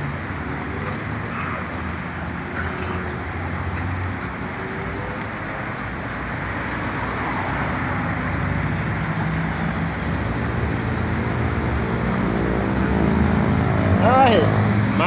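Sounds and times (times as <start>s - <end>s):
engine humming: 8.6s - 15.0s.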